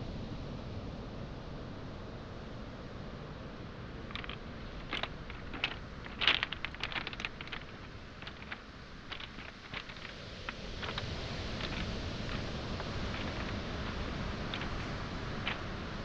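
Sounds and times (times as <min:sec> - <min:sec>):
waves washing on shore: 0:03.8 - 0:16.0
footsteps on pebbles: 0:04.0 - 0:16.0.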